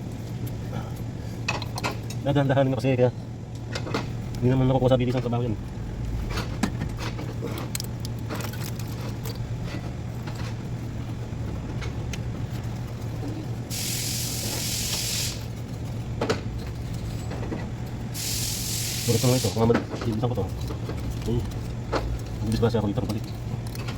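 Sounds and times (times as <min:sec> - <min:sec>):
steady low hum: 0:00.0 - 0:23.9
spray hissing: 0:13.7 - 0:15.5, 0:18.2 - 0:19.7.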